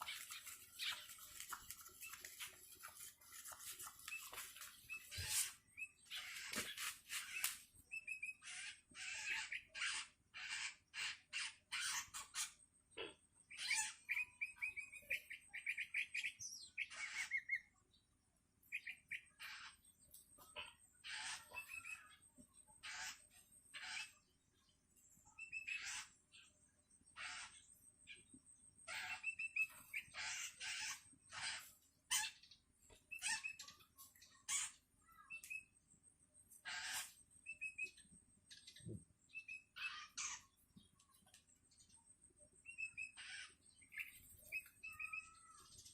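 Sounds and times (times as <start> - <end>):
short thin bird chips: 0.0 - 7.7.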